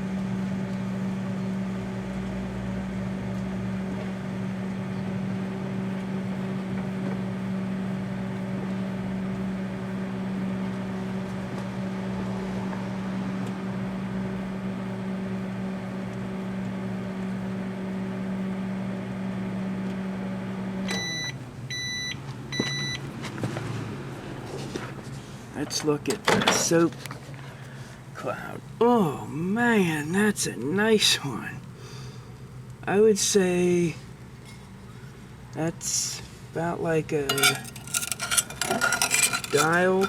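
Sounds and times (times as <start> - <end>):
microwave oven humming: 0.0 - 40.0
microwave beeps: 20.8 - 23.0.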